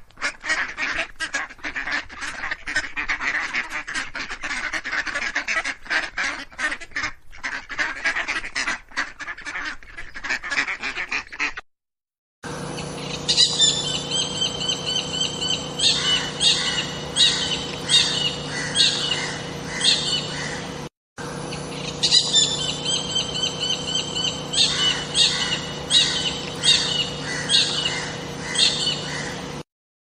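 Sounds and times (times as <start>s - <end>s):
steady low hum: 12.4s - 29.6s
bird singing high thin notes: 21.6s - 29.1s.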